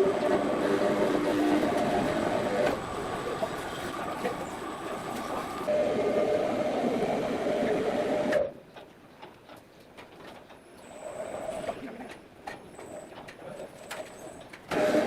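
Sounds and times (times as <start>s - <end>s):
sawmill machinery rumble and whine: 0.0s - 8.5s.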